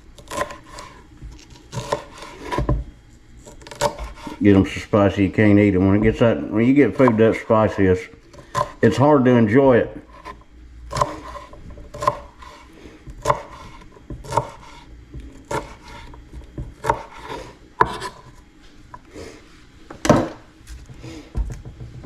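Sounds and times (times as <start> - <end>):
knife scraping cutting board: 0.2 - 2.8, 3.4 - 4.5, 6.0 - 8.8, 10.0 - 19.4
knife chopping on cutting board: 0.2 - 4.4, 6.0 - 7.5, 8.3 - 8.8, 10.1 - 18.4.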